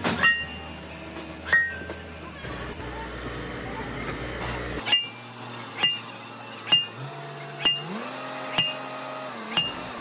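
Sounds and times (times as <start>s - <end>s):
hammer striking metal: 0.0s - 0.6s, 5.8s - 6.0s, 7.6s - 7.9s
low machine hum: 0.0s - 4.8s.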